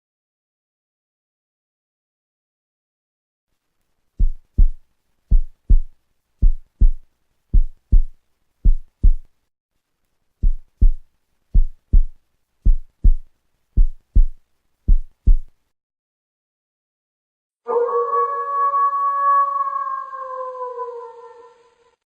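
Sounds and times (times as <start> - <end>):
heartbeat thumps: 4.2 - 9.3, 10.4 - 15.5.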